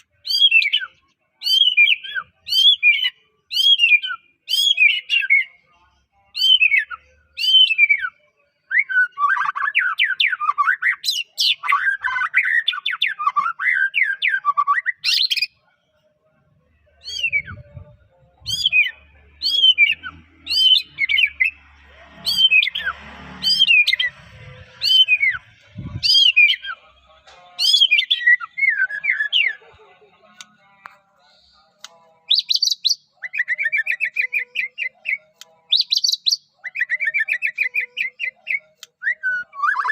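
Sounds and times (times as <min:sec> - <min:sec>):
bird singing whistled notes: 0:00.2 - 0:05.6, 0:06.3 - 0:15.5, 0:17.0 - 0:21.6, 0:24.8 - 0:26.9, 0:27.6 - 0:29.6, 0:32.3 - 0:39.9.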